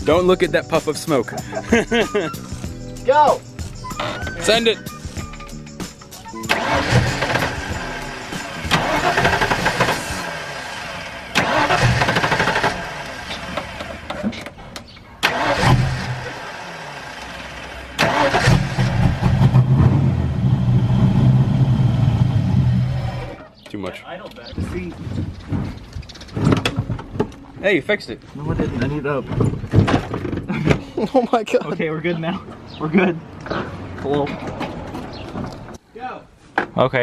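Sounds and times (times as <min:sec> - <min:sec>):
car engine revving in surges: 0:06.4 - 0:14.2, 0:15.2 - 0:23.4.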